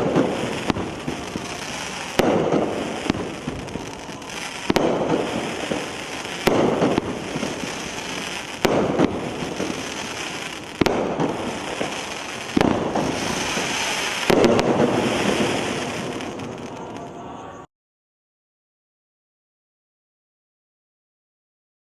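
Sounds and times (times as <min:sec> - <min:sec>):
firework shots: 0:00.0 - 0:17.3
firework crackling: 0:00.0 - 0:17.6.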